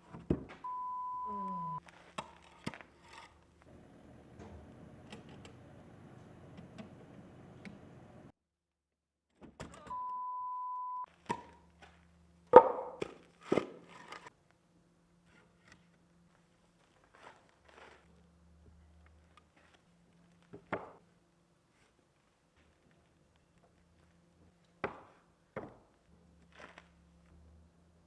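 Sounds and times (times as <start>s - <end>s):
steady beep: 0.7s - 1.8s, 9.9s - 11.1s.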